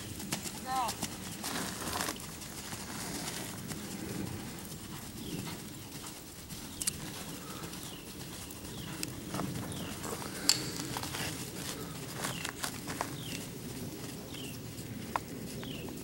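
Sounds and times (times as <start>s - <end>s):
horse hoofbeats on dirt: 0.0s - 16.0s
sharp clicks: 6.8s - 7.0s.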